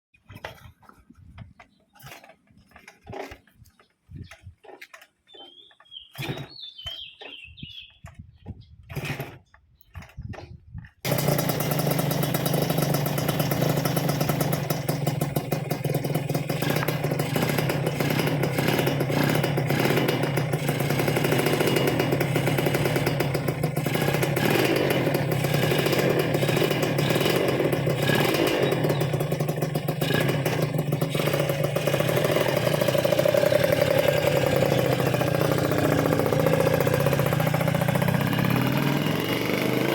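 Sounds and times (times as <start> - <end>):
two-stroke motorcycle engine running: 11.0 - 39.9.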